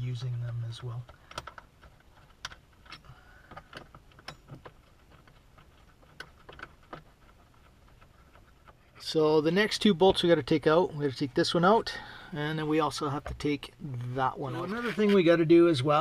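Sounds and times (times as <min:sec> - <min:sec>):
hand tools clicking and clinking: 0:00.5 - 0:08.8.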